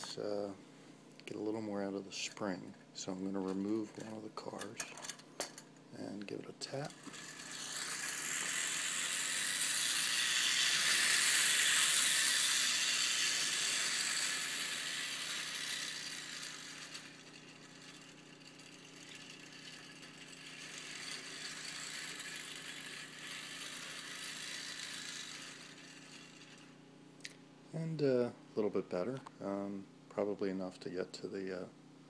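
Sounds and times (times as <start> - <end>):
clockwork toy train whirring: 6.6 - 26.8.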